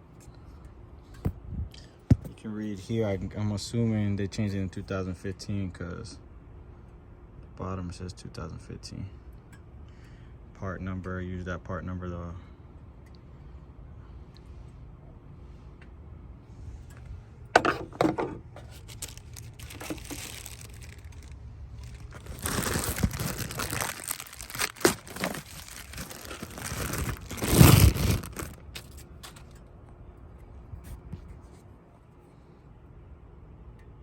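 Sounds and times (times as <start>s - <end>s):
packaging crinkling and tearing: 18.6s - 29.5s.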